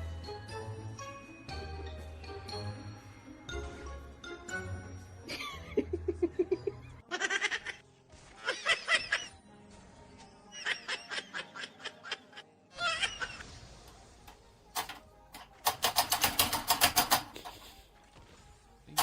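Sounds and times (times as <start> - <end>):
background music: 0.0 - 19.0
bursts of laughter: 8.4 - 9.3, 10.5 - 13.4.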